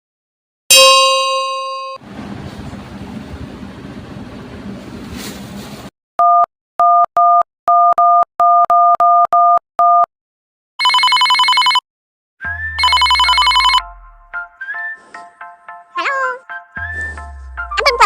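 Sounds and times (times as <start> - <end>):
telephone keypad beeps: 6.2 - 10.1, 12.8 - 13.8
steady telephone tones: 12.8 - 13.8.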